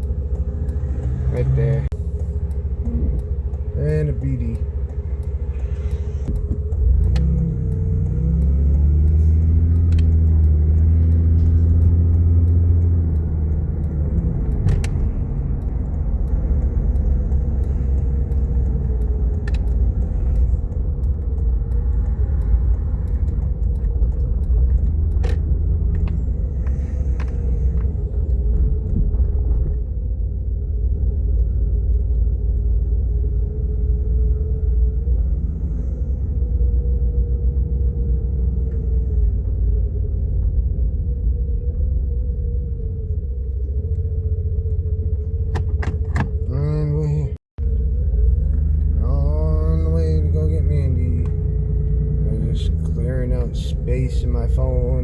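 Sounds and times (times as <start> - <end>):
faint sharp clicks: 0.0 - 29.3
car engine and road rumble: 0.0 - 55.0.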